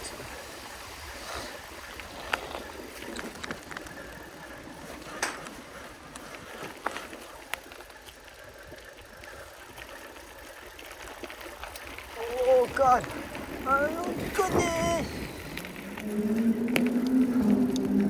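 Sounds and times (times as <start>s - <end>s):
bicycle tyre and wind noise: 0.0s - 18.0s
bicycle clicks and knocks: 1.8s - 18.0s.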